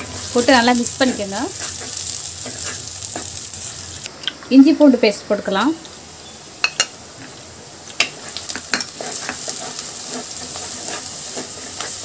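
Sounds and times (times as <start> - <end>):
onions sizzling in hot oil: 0.0 - 4.2, 4.9 - 12.0
wooden spatula scraping a pot: 8.9 - 12.0.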